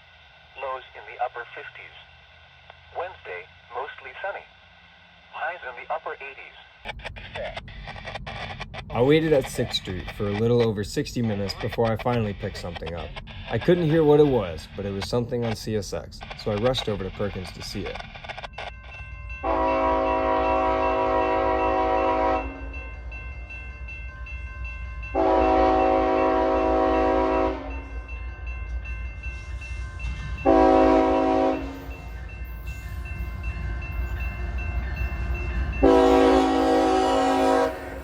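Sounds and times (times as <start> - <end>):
low train rumble: 0.0 - 38.0
locomotive air horn blasts: 19.4 - 22.7, 25.1 - 27.8, 30.4 - 31.9, 35.8 - 38.0.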